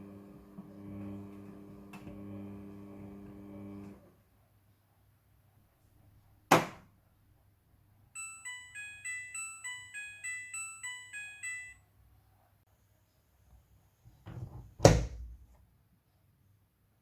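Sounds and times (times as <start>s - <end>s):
washing machine beeping melody: 8.2s - 11.9s.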